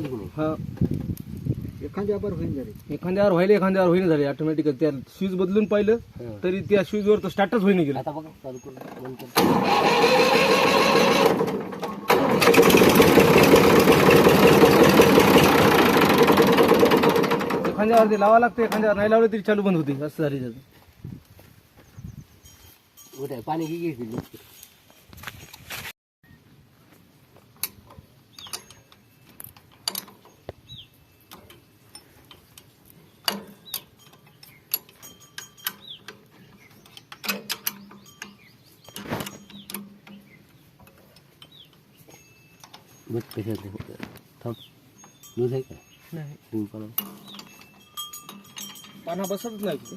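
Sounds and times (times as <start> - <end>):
tractor engine running: 9.4 - 19.0
metallic clicks of hand tools: 27.6 - 30.6, 31.3 - 40.2.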